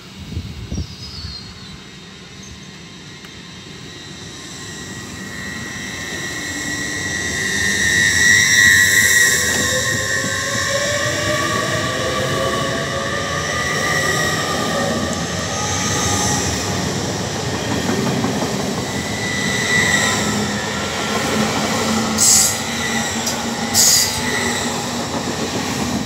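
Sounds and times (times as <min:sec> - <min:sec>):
train wheels rushing on rail: 0:00.0 - 0:26.0
faint high whine: 0:00.3 - 0:10.7.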